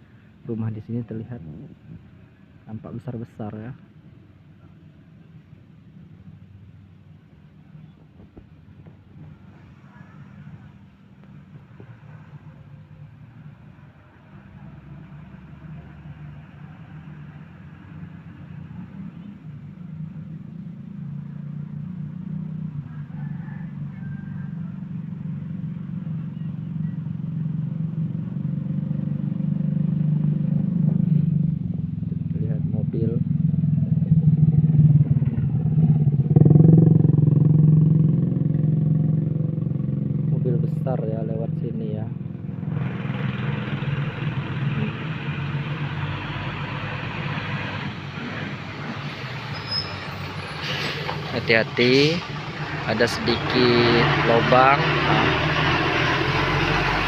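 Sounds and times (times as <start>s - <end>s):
low engine hum: 0.0s - 57.0s
truck passing close by: 9.1s - 41.2s, 41.9s - 57.0s
motorcycle engine running: 19.7s - 45.8s.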